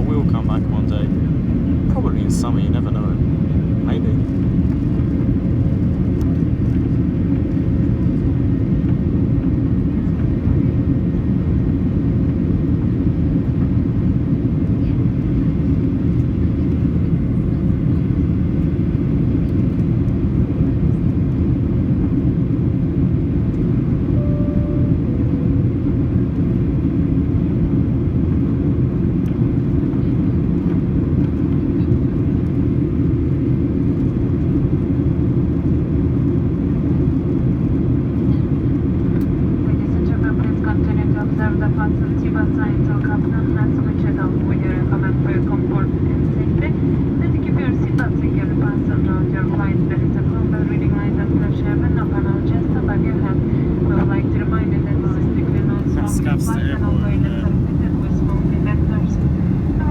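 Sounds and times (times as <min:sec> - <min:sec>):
jet cabin engine roar: 0:00.0 - 0:59.9
two-note cabin chime: 0:24.0 - 0:26.4.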